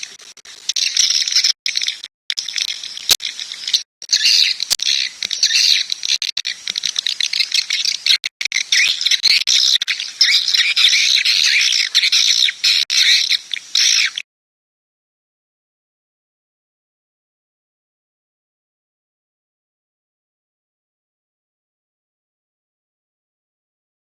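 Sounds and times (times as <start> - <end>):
high chittering bird chirps: 0.0 - 14.2.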